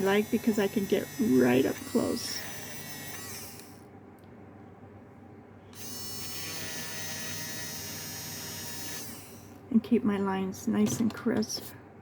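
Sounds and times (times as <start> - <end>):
electric pencil sharpener running: 0.0 - 3.9, 5.8 - 9.6.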